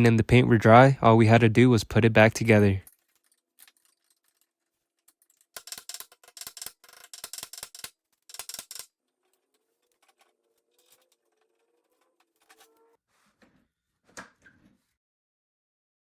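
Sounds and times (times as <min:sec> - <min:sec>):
ratcheting tool clicking: 0:05.1 - 0:11.1.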